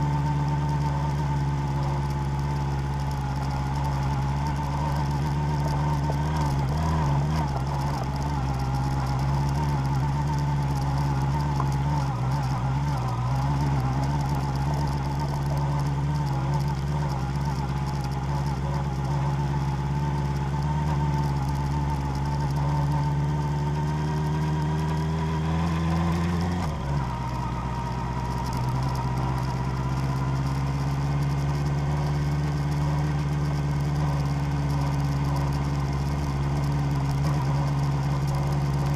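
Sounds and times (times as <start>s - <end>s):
vehicle engine driving offroad: 0.0s - 38.9s.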